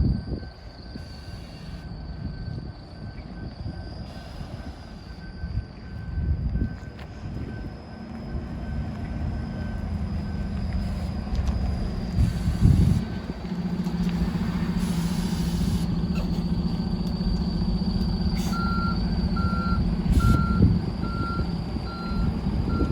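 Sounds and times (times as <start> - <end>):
bus engine running: 0.0 - 22.9
reversing alarm beeping: 0.0 - 22.9
air hiss: 14.8 - 16.5.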